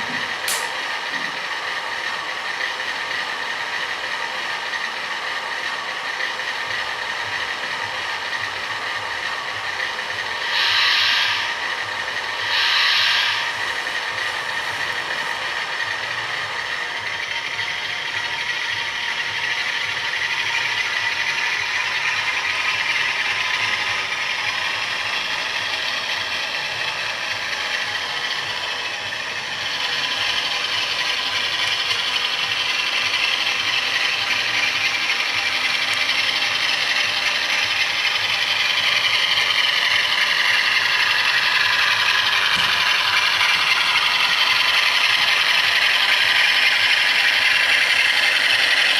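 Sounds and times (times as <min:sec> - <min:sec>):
diesel engine sound from small speaker: 0:00.0 - 0:48.9
model train wheels rattling: 0:00.0 - 0:48.9.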